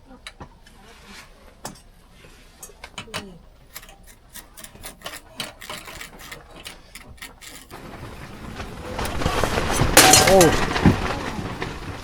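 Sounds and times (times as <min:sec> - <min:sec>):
utensil clicking on metal ladle: 0:03.0 - 0:07.8.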